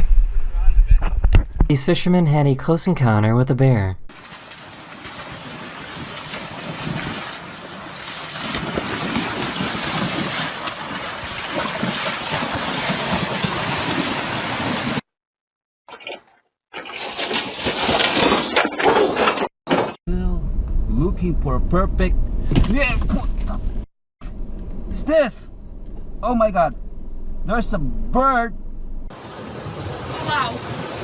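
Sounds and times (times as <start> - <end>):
wind: 0.0 - 2.0, 4.1 - 15.0, 15.9 - 31.0
rushing water: 4.1 - 15.0, 29.1 - 31.0.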